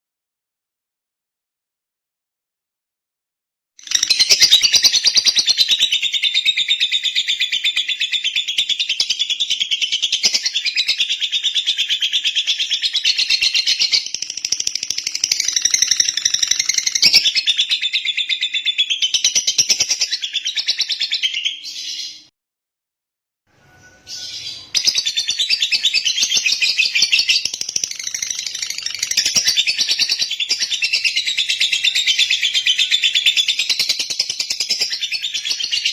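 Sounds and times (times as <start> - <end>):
lovebird chattering: 10.2 - 22.0, 24.1 - 35.7.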